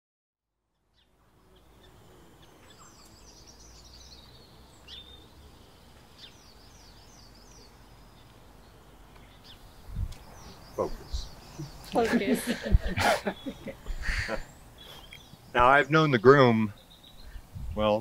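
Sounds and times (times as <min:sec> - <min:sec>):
small birds chirping: 0:00.7 - 0:18.0.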